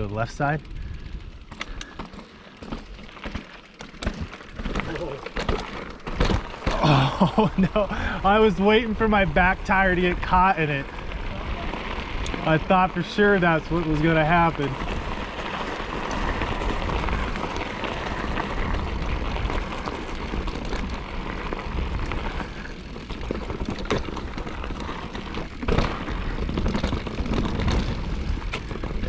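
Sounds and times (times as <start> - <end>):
bike rolling over rocky ground: 0.0 - 29.0
sharp knocks from bike tyres: 2.0 - 6.9.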